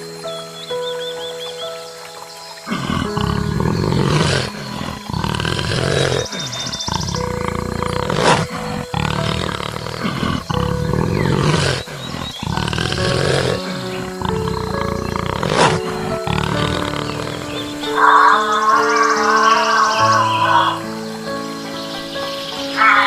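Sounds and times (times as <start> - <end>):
background music: 0.0 - 23.0
animal roars: 2.7 - 21.0.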